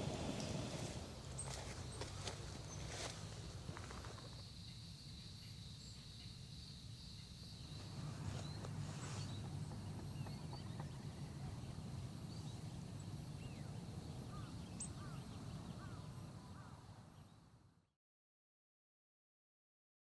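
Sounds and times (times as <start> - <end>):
bird chirps: 4.2 - 17.5.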